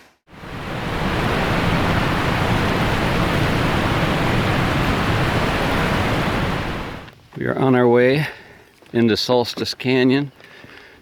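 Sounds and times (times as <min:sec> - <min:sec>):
waterfall roaring: 0:00.3 - 0:07.1.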